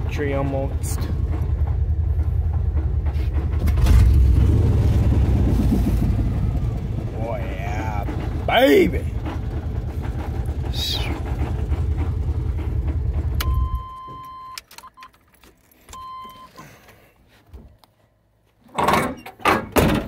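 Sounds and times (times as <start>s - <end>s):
car engine idling: 0.0s - 14.4s
dashboard warning chime: 13.4s - 15.1s, 16.0s - 16.6s.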